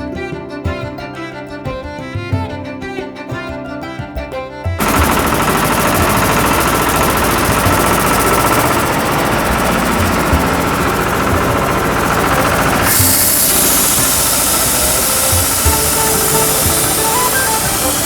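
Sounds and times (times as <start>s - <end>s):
background music: 0.0s - 18.0s
road construction machinery rattling: 4.8s - 18.0s.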